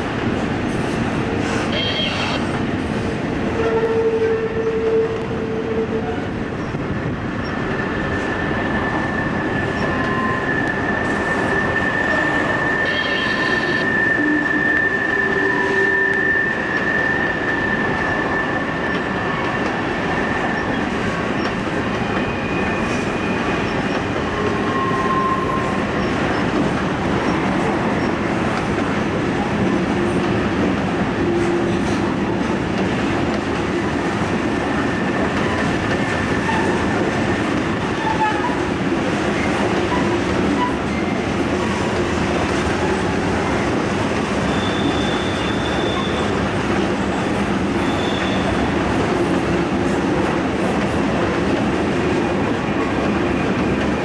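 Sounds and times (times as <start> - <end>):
freight train rumble and clatter: 0.0 - 54.0
train wheels squealing: 7.4 - 26.5, 44.4 - 46.4, 47.2 - 48.7.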